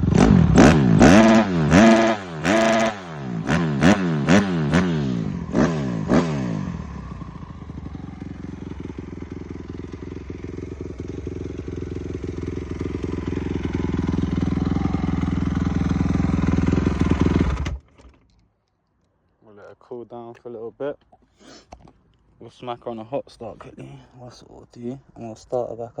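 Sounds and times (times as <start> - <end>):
dirt bike engine revving and idling: 0.0 - 17.8.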